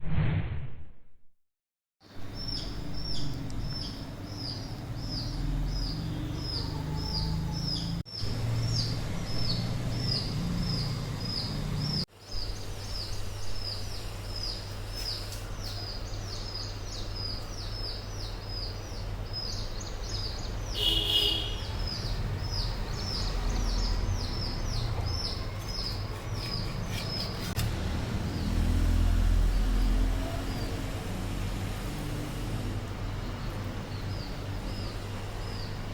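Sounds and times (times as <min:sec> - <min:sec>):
small bird chirping: 0:02.2 - 0:27.6.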